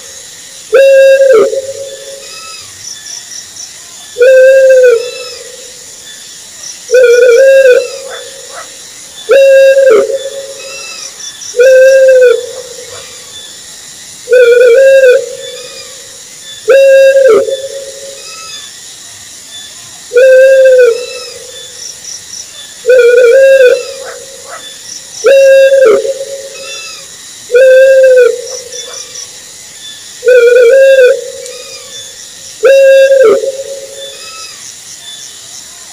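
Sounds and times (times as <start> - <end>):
owl hooting: 0.7 - 2.7, 4.2 - 5.7, 6.9 - 8.7, 9.3 - 13.3, 14.3 - 18.6, 20.1 - 21.7, 22.8 - 29.2, 30.2 - 34.6.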